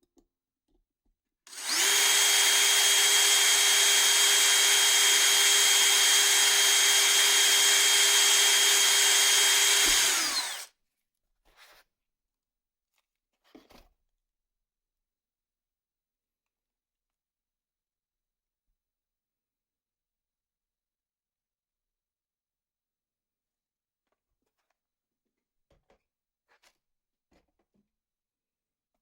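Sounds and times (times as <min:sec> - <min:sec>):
electric power tool running: 0:01.5 - 0:10.7.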